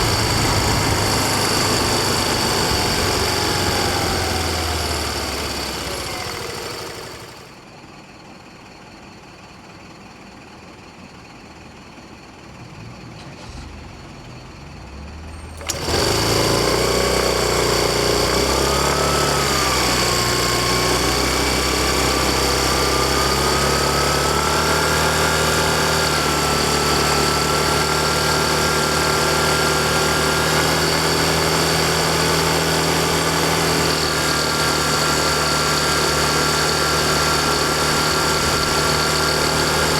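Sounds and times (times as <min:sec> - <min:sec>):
scooter engine running with whine: 0:00.0 - 0:07.6, 0:15.6 - 0:39.9.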